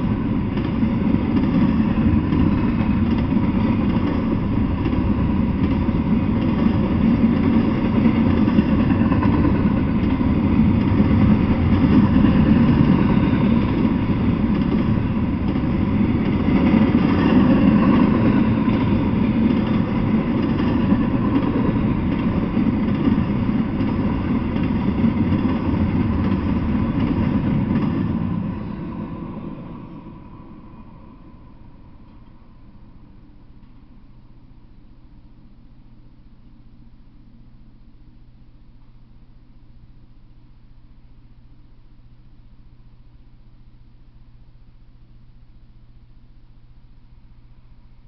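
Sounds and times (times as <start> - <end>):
freight train wheels on rails: 0.0 - 34.0.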